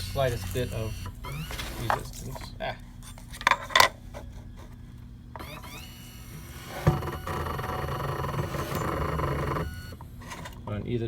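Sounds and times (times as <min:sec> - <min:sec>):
rough motor buzzing: 0:00.0 - 0:02.5, 0:05.4 - 0:10.9
machine motor whine: 0:00.0 - 0:02.8, 0:04.3 - 0:11.0.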